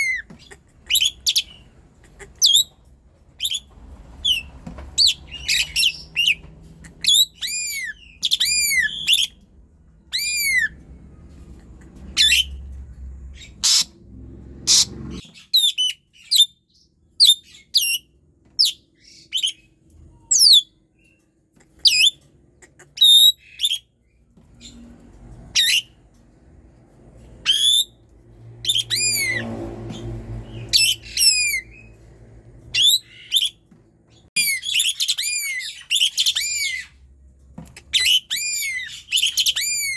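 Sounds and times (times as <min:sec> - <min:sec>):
starling singing: 0:00.0 - 0:02.8, 0:03.4 - 0:09.4, 0:30.5 - 0:31.9.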